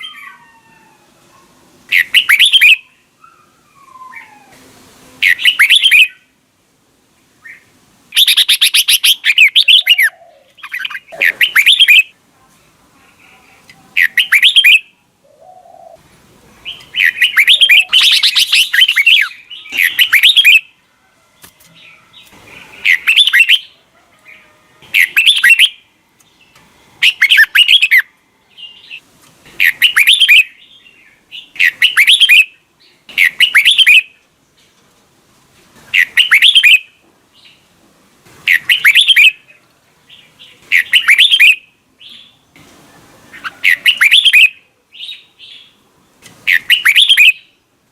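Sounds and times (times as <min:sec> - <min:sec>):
bird warbling: 0:01.9 - 0:04.6, 0:05.2 - 0:06.2, 0:07.4 - 0:12.1, 0:14.0 - 0:16.0, 0:16.6 - 0:20.7, 0:22.4 - 0:25.8, 0:27.0 - 0:28.1, 0:29.6 - 0:30.5, 0:38.5 - 0:39.4, 0:40.7 - 0:41.6, 0:43.3 - 0:44.6, 0:46.4 - 0:47.4.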